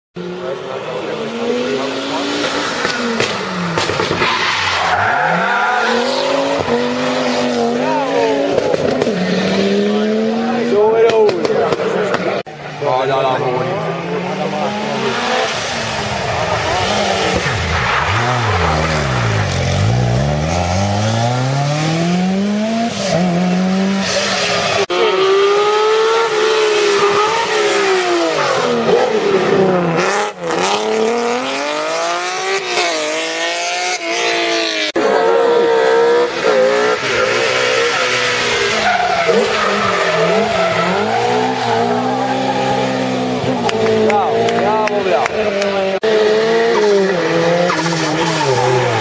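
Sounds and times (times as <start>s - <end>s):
rally car engines revving: 0.2s - 49.0s.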